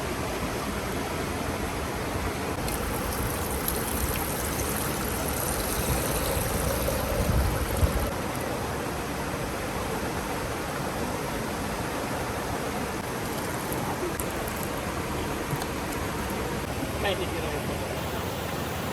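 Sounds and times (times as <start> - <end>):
river rushing: 16.0 - 18.9.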